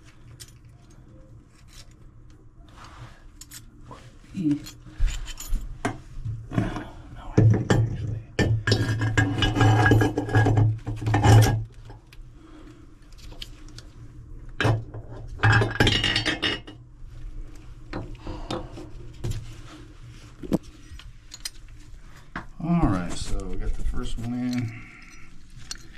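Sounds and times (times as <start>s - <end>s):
quiet handling noise: 17.4s - 25.9s
metal parts clinking: 20.8s - 21.7s, 24.3s - 25.9s.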